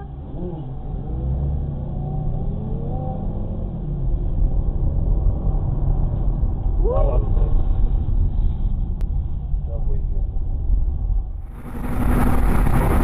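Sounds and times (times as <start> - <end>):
car engine accelerating: 0.0 - 8.1, 11.4 - 13.0
low road rumble: 0.0 - 13.0.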